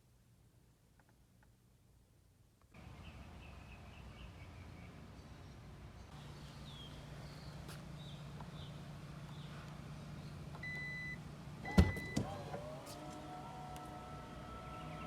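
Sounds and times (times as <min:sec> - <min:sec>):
electric motor whine: 0:12.1 - 0:15.0.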